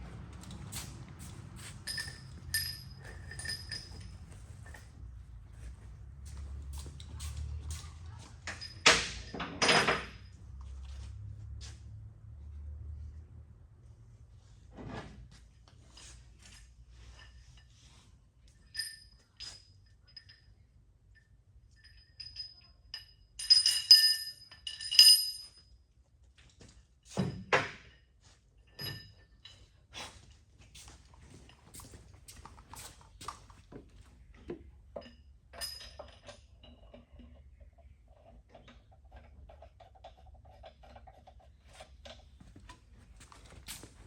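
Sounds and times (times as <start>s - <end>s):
metal clinks and knocks: 0.0s - 11.0s, 15.5s - 29.9s, 31.1s - 44.0s
ringing metal clinks: 1.6s - 4.9s, 8.4s - 10.4s, 18.5s - 25.8s, 28.7s - 29.8s, 35.0s - 36.4s.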